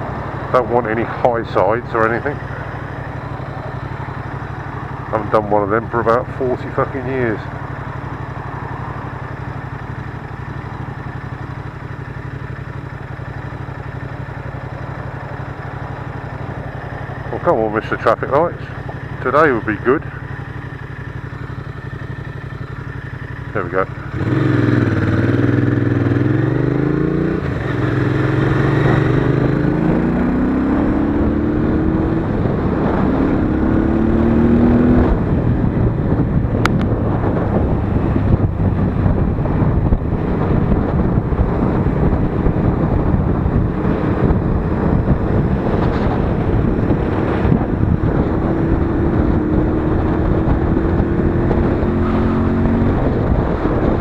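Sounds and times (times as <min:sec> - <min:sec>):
motorcycle engine accelerating: 0:00.0 - 0:54.0
wind noise on microphone: 0:24.1 - 0:54.0.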